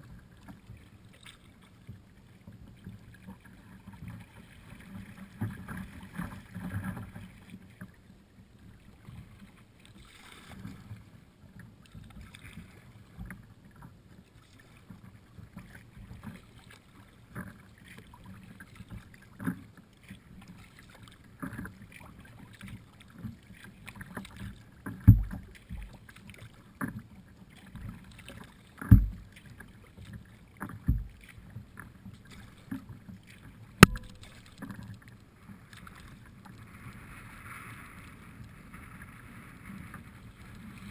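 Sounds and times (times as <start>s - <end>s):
paddle strokes: 0.0s - 40.9s
water moving around hull: 0.0s - 40.9s
sharp thumps: 33.8s - 34.5s.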